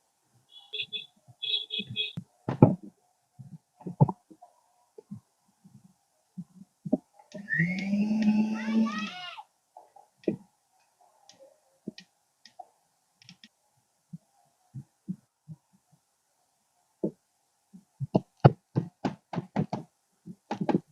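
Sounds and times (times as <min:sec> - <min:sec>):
rapid sharp knocks: 0:18.1 - 0:20.9.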